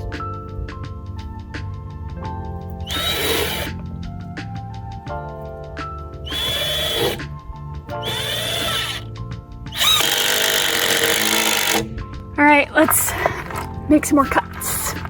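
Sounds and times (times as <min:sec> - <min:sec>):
background music with ticking beat: 0:02.6 - 0:12.4
power drill whining: 0:02.9 - 0:03.8, 0:06.3 - 0:07.3, 0:08.0 - 0:09.0, 0:09.7 - 0:11.9.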